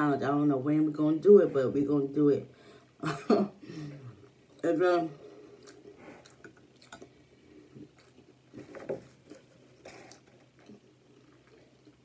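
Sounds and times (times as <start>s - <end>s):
wet chewing and mouth clicks: 5.5s - 12.0s.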